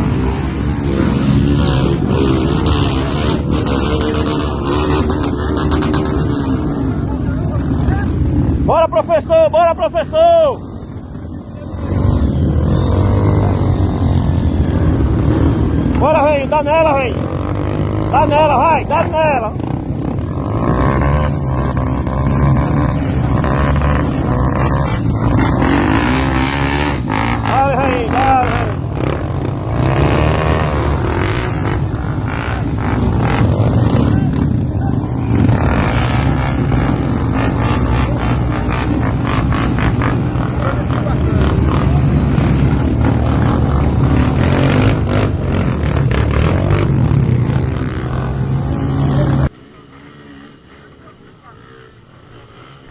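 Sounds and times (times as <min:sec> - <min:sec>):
motorcycle engine revving: 0:00.0 - 0:08.8, 0:10.6 - 0:52.9.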